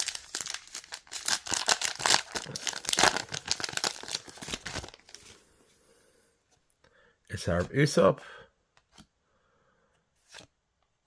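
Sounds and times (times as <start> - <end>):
card pack wrapper crinkling and tearing: 0.0 - 5.4.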